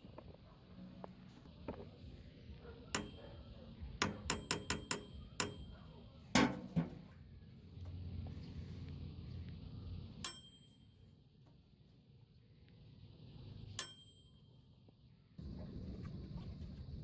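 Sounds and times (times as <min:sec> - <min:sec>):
metal parts clinking and knocking: 0:04.0 - 0:05.7.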